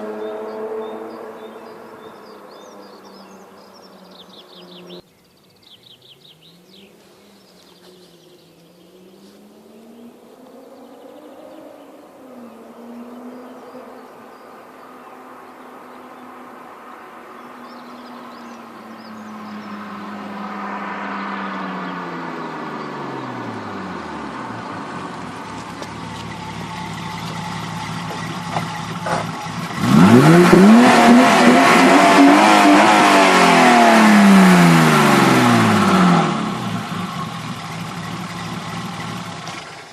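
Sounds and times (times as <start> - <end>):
car engine revving: 15.4 - 39.9.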